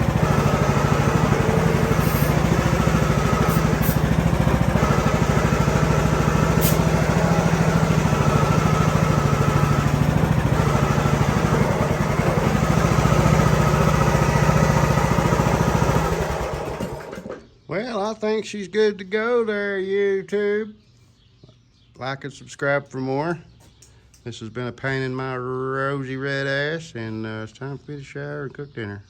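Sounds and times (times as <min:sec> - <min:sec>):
riding mower engine running: 0:00.0 - 0:17.6.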